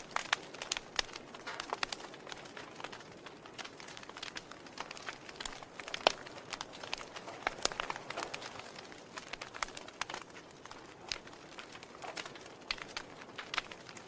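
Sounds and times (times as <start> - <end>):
fire low hiss: 0.0 - 14.0
wood fire crackling and popping: 0.0 - 14.0.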